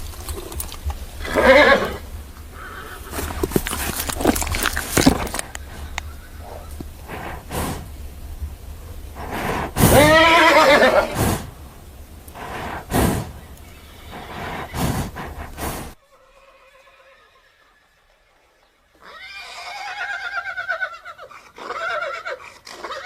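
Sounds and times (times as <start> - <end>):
horse rough snorts: 0.0 - 8.0, 9.1 - 11.6, 12.3 - 13.4, 14.0 - 16.0
horse whinnying: 1.2 - 7.8, 9.2 - 11.5, 12.4 - 18.3, 19.0 - 23.0.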